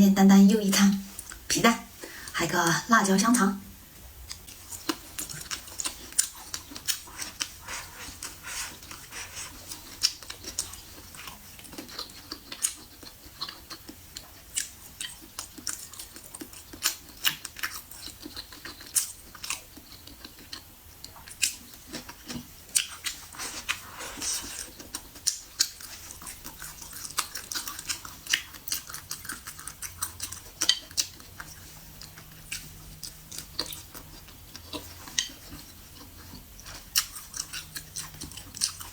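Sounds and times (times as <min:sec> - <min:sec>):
person chewing food: 0:04.2 - 0:38.9.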